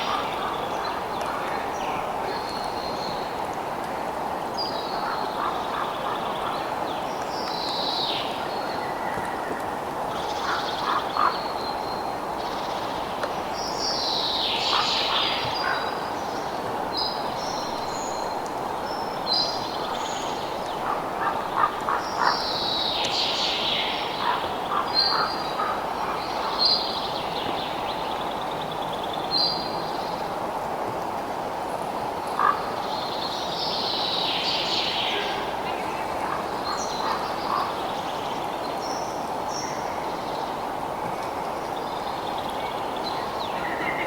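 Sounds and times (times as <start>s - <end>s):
wild birds calling: 0.0s - 3.3s, 4.6s - 7.0s, 10.1s - 11.7s, 14.3s - 16.4s, 19.3s - 27.4s, 32.4s - 33.2s, 34.3s - 40.1s.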